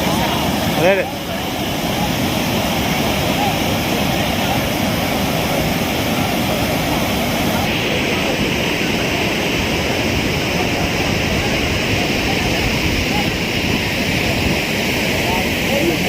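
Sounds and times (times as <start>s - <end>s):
water rushing over spillway: 0.0s - 16.0s.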